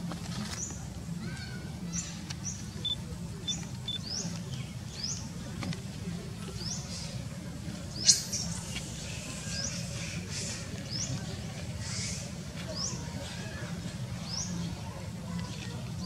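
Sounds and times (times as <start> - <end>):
small birds chirping: 1.8 - 5.4.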